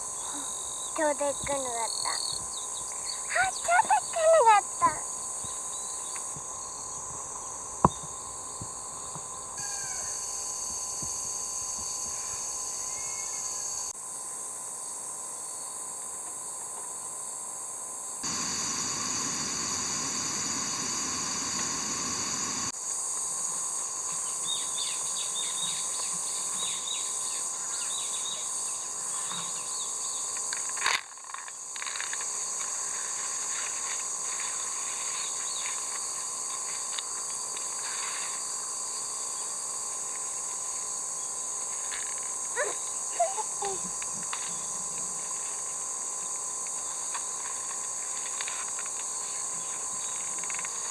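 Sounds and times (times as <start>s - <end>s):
insects buzzing and trilling: 0.0s - 50.9s
faint rustles and ticks: 43.7s - 50.9s.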